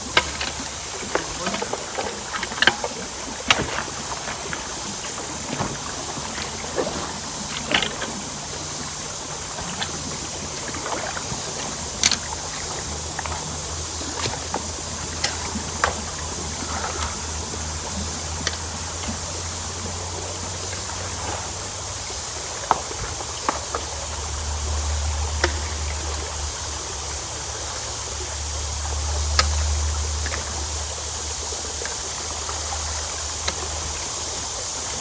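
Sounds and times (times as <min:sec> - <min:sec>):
short splashes and knocks: 0:00.0 - 0:26.4
creek water rushing through culvert: 0:00.0 - 0:35.0
low steady hum: 0:00.0 - 0:35.0.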